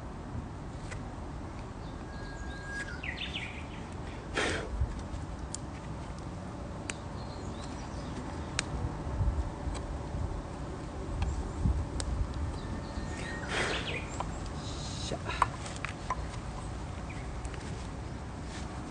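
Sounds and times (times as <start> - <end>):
warbler song: 1.4 - 4.3, 5.2 - 9.6, 10.4 - 18.9.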